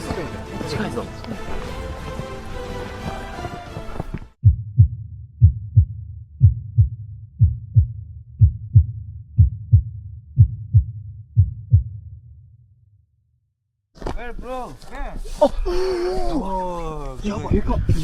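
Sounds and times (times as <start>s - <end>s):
heartbeat thumps: 1.4s - 12.2s.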